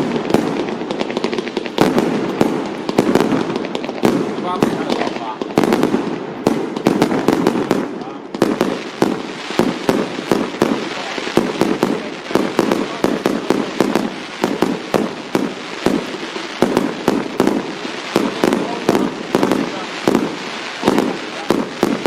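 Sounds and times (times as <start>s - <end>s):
firecrackers banging: 0.0s - 22.0s
people's voices: 3.6s - 5.7s, 9.9s - 16.1s, 18.2s - 22.0s.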